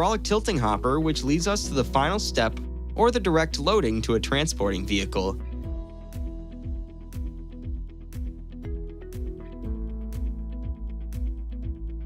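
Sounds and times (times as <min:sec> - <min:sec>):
bass line: 0:00.0 - 0:12.0
deep kick drum: 0:05.7 - 0:12.0.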